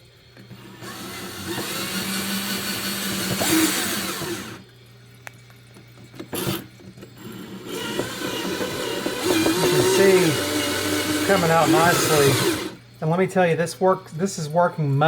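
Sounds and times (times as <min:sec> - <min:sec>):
drill grinding into ceramic: 0:00.5 - 0:04.7, 0:06.3 - 0:12.8.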